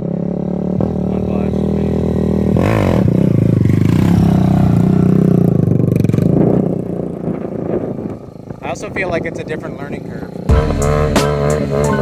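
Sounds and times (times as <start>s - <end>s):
mini bike engine revving: 0.0s - 8.8s.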